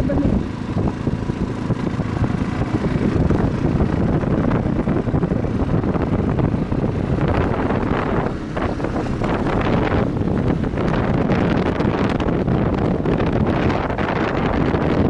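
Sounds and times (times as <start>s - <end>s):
motorcycle engine and road noise: 0.0s - 15.0s
wind buffeting microphone: 0.0s - 15.0s.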